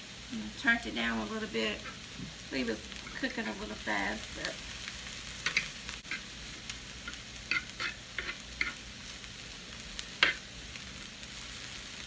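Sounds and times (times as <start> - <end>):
food sizzling on a grill: 0.0 - 12.0.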